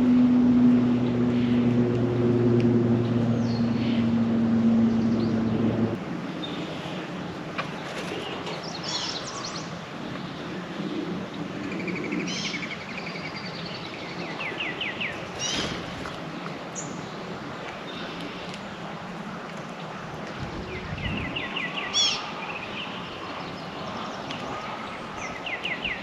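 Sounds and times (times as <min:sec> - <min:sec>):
steady outdoor hiss: 0:00.0 - 0:26.0
songbirds chirping: 0:00.2 - 0:26.0.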